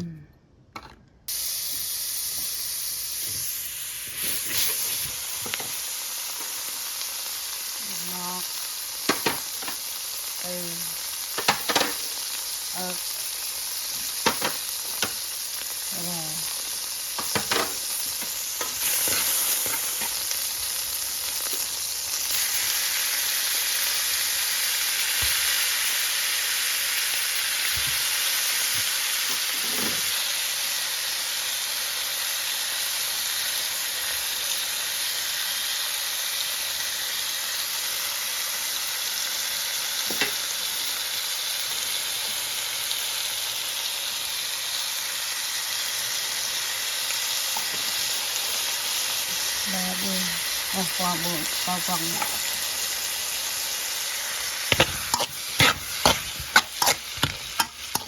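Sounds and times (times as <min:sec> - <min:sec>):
food sizzling in a pan: 0:01.3 - 0:58.0
utensil clicking against pan: 0:54.7 - 0:58.0.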